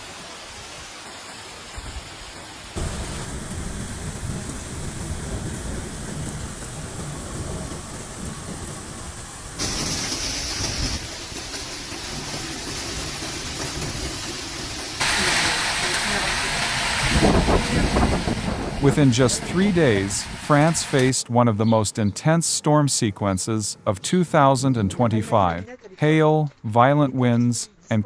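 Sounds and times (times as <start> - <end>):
heavy rain: 0.0 - 21.2
gusting wind: 1.6 - 21.2
wind rumbling on microphone: 1.7 - 11.6, 16.4 - 21.1.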